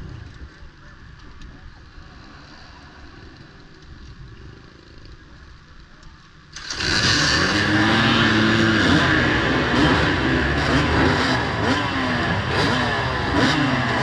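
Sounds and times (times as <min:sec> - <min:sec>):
motorcycle engines revving: 0:06.5 - 0:14.0.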